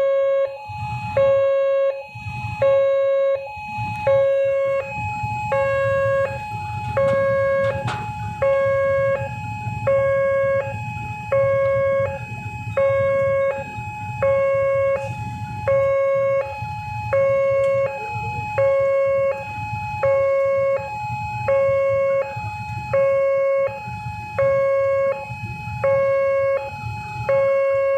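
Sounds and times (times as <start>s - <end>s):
level-crossing two-tone alarm: 0.0s - 27.9s
low rumble: 3.5s - 20.1s.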